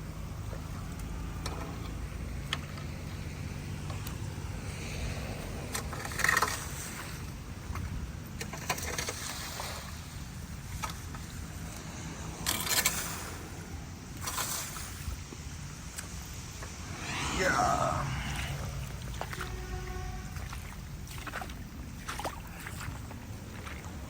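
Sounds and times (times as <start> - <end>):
low rumble: 16.6 - 20.0
footsteps sloshing through water: 20.3 - 24.0.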